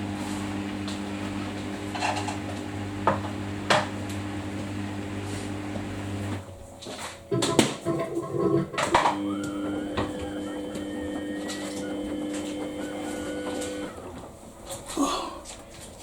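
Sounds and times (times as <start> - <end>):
washing machine motor hum: 0.0 - 16.0
clanks inside washing machine drum: 7.3 - 9.2.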